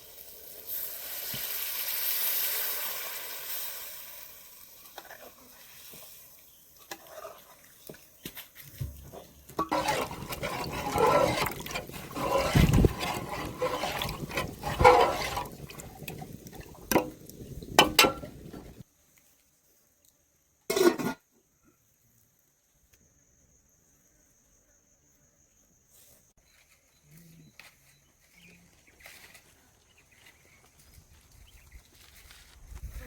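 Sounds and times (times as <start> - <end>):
water sloshing and splashing: 8.7 - 18.8.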